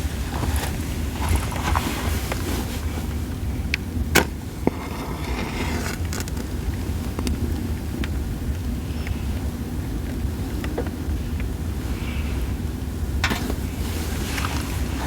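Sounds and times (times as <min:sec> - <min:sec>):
campfire crackling and popping: 0:05.8 - 0:08.7.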